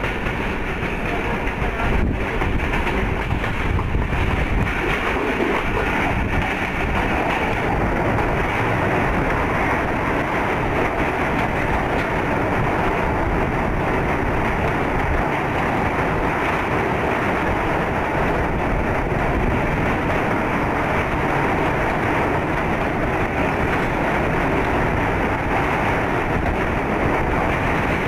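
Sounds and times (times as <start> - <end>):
train rumbling on track: 0.0 - 28.0
wind buffeting microphone: 0.0 - 28.0.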